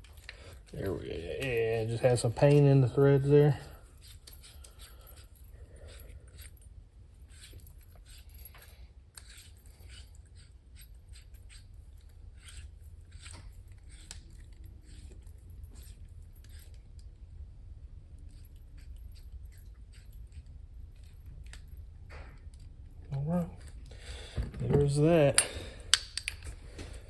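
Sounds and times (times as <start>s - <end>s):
hand tools clinking and scraping: 0.0s - 6.6s, 23.2s - 27.0s
steady low hum: 0.0s - 27.0s.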